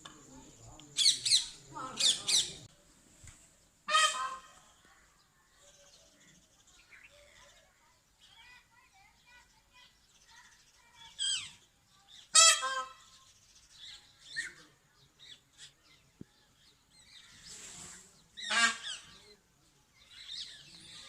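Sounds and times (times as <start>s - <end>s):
peacock calling: 0.4s - 2.7s, 3.8s - 4.8s, 11.1s - 15.8s, 17.0s - 19.4s.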